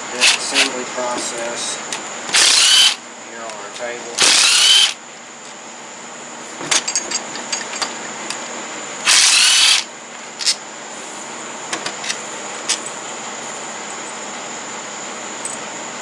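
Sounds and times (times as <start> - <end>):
power driver spinning up: 2.3 - 3.0, 4.2 - 5.0, 9.1 - 9.9.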